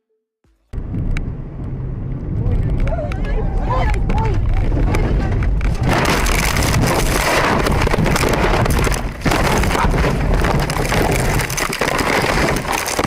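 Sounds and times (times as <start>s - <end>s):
car wind and road noise: 0.7s - 9.2s.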